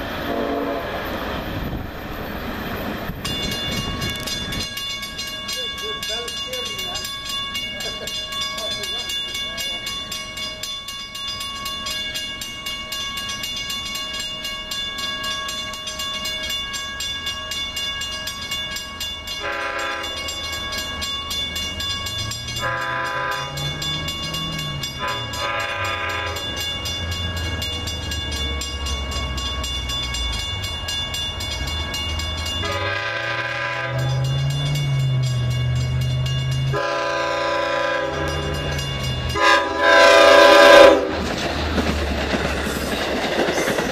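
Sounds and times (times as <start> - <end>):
train engine rumbling: 0.0 - 43.9
train air horn blasts: 0.2 - 1.0, 19.4 - 20.3, 22.6 - 23.7, 25.0 - 26.6, 32.6 - 34.3, 36.7 - 38.6, 39.4 - 41.2
steady high ringing: 2.6 - 41.1.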